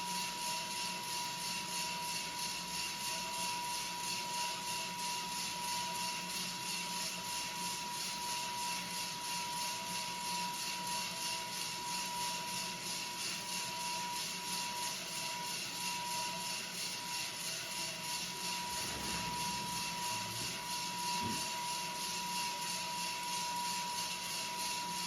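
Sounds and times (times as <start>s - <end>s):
exhaust blower whirring: 18.3s - 21.7s
high whistle: 18.4s - 24.1s.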